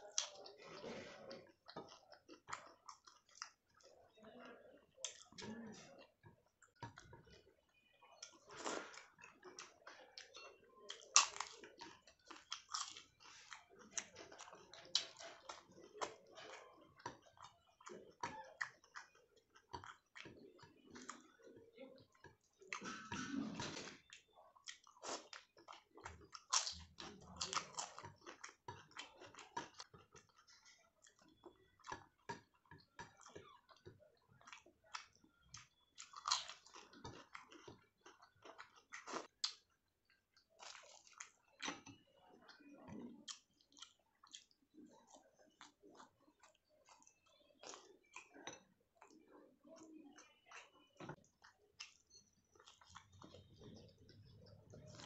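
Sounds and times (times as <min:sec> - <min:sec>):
chewing and biting food: 0:00.0 - 0:04.2, 0:04.9 - 0:55.0.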